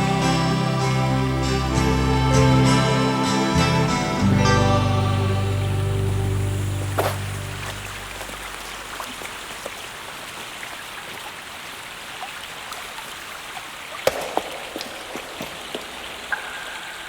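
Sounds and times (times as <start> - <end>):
rain or running water: 5.4 - 17.0.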